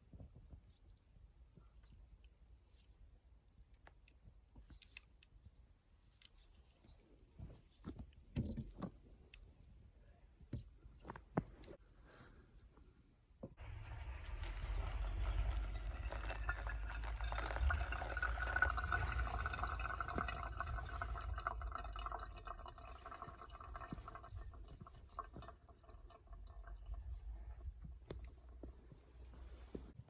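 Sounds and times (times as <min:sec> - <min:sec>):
water pouring into container: 0:13.6 - 0:27.5
water trickling and dripping: 0:13.6 - 0:29.6.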